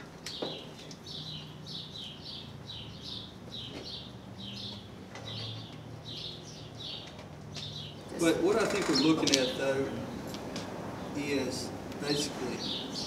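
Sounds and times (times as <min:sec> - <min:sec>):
small bird chirping: 0:00.3 - 0:08.1.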